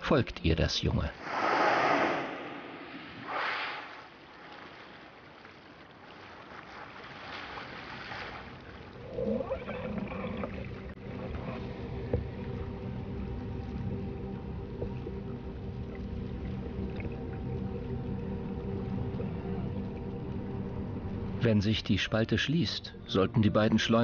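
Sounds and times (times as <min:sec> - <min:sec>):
whale exhaling whoosh: 0:01.2 - 0:04.2
wavering whale tones: 0:09.0 - 0:21.4
low underwater rumble: 0:10.2 - 0:21.4.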